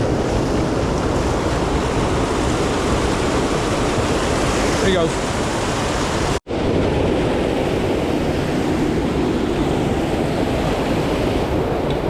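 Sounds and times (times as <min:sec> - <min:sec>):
flowing creek: 0:00.0 - 0:06.4
wind buffeting microphone: 0:00.0 - 0:12.0.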